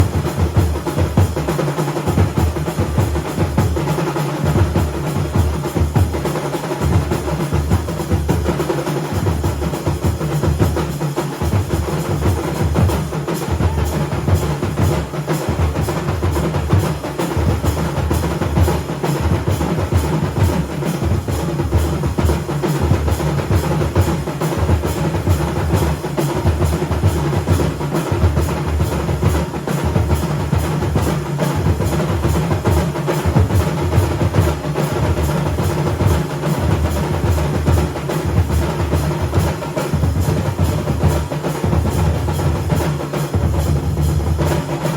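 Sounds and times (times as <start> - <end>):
drums beaten hard: 0.0 - 44.9.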